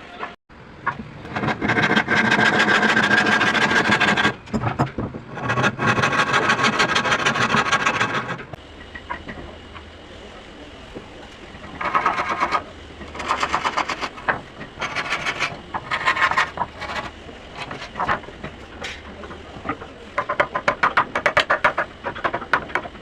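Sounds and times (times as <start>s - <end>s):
hand tool scraping wood: 1.3s - 4.7s, 5.3s - 8.5s, 11.8s - 18.2s.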